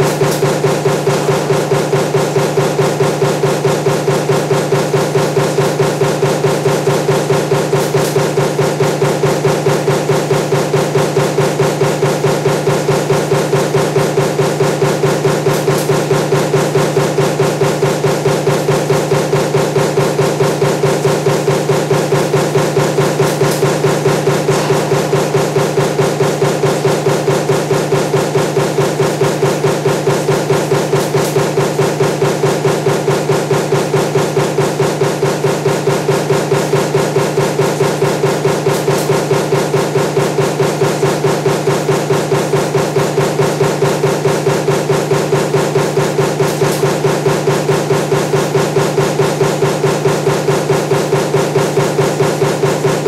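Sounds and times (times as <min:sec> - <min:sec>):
press humming: 0:00.0 - 0:53.0
power press strokes: 0:12.0 - 0:34.1.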